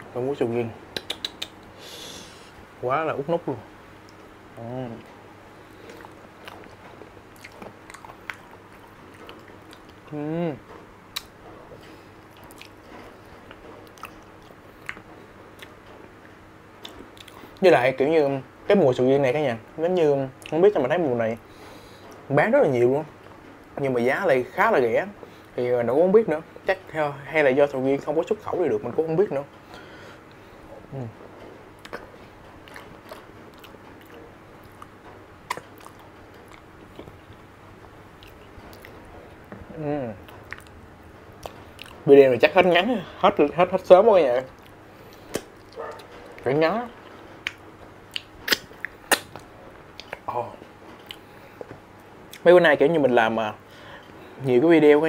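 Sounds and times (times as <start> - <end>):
faint steady hum: 0.0 - 55.0
lip-smack clicks: 0.9 - 1.7, 31.8 - 32.1, 44.6 - 46.4, 47.4 - 50.3
wet chewing: 5.8 - 10.1, 11.1 - 15.8, 16.8 - 17.6, 31.8 - 37.5, 38.2 - 40.8, 41.4 - 42.0, 44.4 - 46.4, 47.0 - 50.3, 51.0 - 52.4.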